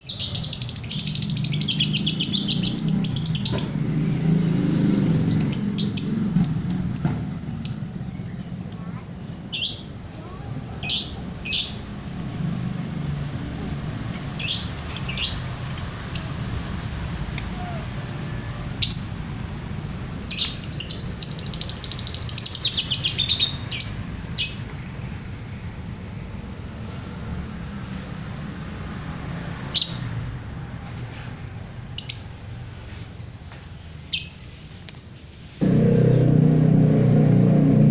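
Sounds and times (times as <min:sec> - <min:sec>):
songbird trilling and chirping: 0:00.0 - 0:03.8, 0:05.2 - 0:08.8, 0:10.8 - 0:17.8, 0:18.8 - 0:24.7
low rumble: 0:35.6 - 0:37.9
steady low hum: 0:35.6 - 0:37.9.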